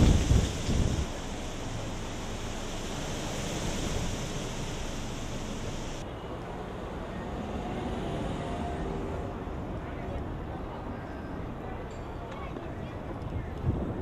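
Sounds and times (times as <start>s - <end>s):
strong gusty wind: 0.0s - 6.0s, 12.8s - 14.0s.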